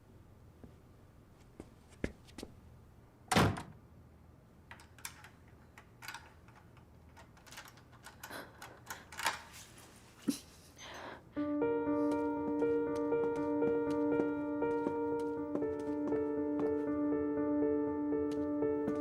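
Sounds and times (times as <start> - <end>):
small clicks and rustles: 4.7 - 9.9.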